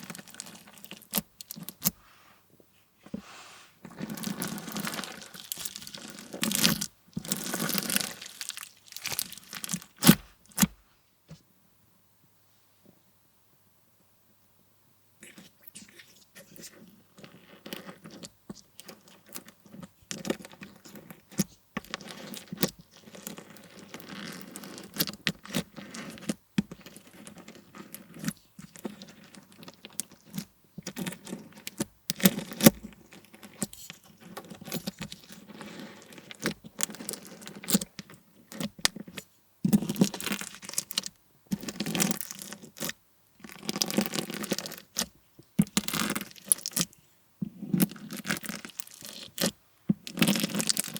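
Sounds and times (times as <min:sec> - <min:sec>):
sticky slime tearing: 0:00.0 - 0:01.9, 0:03.9 - 0:10.8
crunchy slime crackling: 0:00.0 - 0:02.0, 0:03.9 - 0:10.8, 0:38.5 - 0:47.0, 0:47.8 - 0:50.9.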